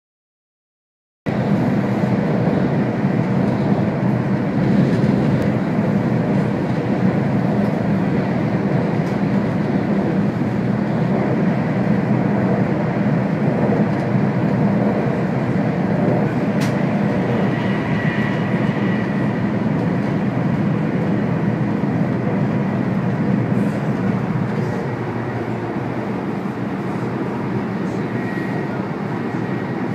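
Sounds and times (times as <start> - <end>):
high-speed train rumbling: 1.3 - 29.9
faint high whine: 24.6 - 29.8.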